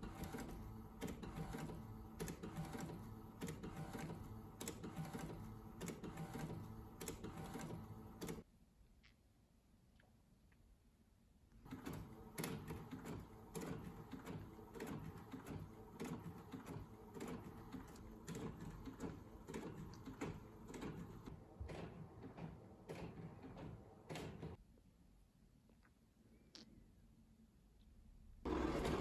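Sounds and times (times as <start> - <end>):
small machine clicking and humming: 0.0 - 8.4, 11.7 - 24.6, 28.5 - 29.0.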